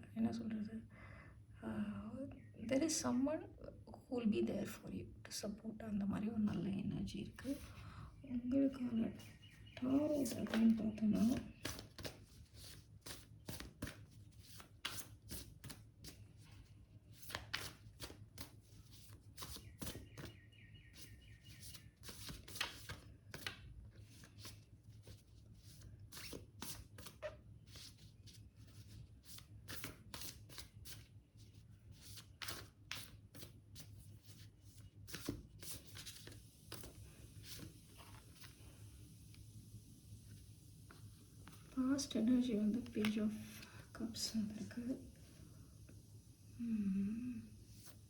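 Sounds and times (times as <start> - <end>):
faint low hum: 0.0 - 48.0
cards being shuffled: 9.2 - 16.5, 17.1 - 31.1, 31.9 - 38.6, 40.9 - 43.7.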